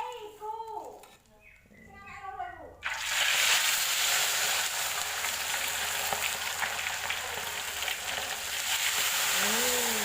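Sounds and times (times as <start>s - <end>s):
fish frying in hot oil: 2.8s - 10.0s.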